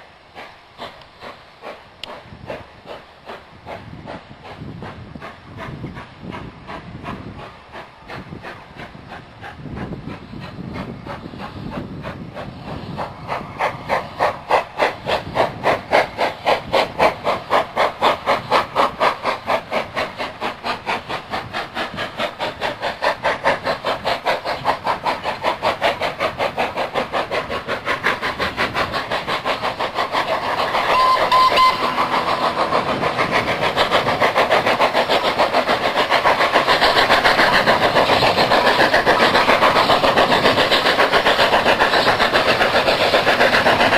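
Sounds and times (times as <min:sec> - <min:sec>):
steam locomotive chuffing: 0:00.0 - 0:43.9
brief high tone: 0:30.9 - 0:31.8.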